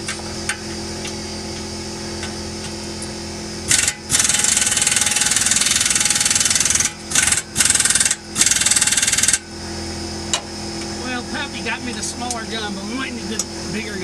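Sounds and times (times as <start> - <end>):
machine hum: 0.0 - 14.0
air impact wrench hammering: 3.6 - 9.5.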